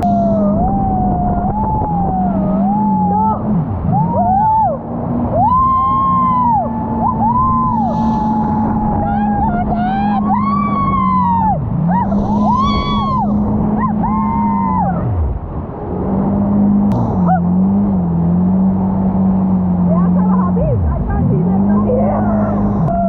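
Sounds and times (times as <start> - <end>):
high engine whine: 0.0 - 23.0
jet ski engine: 0.0 - 23.0.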